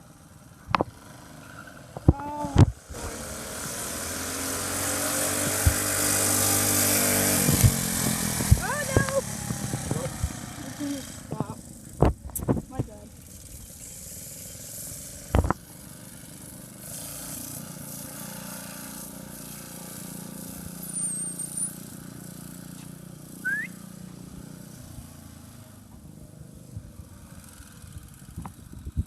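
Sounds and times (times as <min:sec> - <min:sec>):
small engine running: 0:00.0 - 0:29.0
short high chirps: 0:23.4 - 0:23.8.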